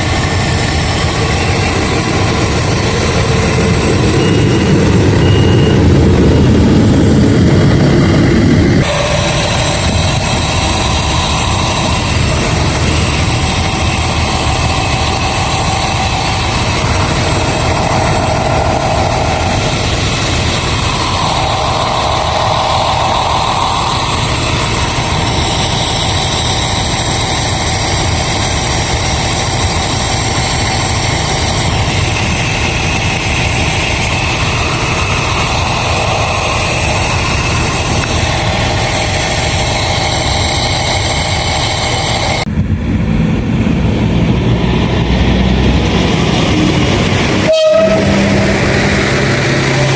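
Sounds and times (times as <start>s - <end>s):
diesel locomotive engine idling: 0.0s - 7.9s, 8.5s - 44.0s, 45.9s - 49.9s
high hiss: 8.8s - 42.5s.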